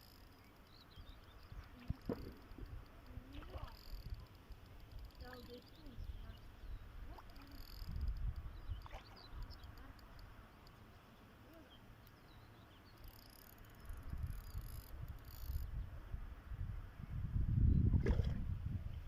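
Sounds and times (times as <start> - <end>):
small birds chirping: 0.0 - 14.8
wind rumble on microphone: 1.0 - 9.9, 13.8 - 19.0.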